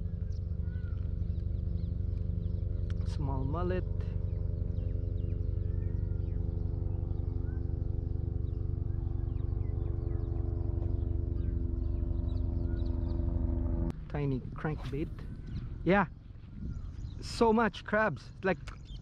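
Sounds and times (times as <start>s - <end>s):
faint bird chirps: 0.0s - 13.5s
engine idling: 0.0s - 17.1s.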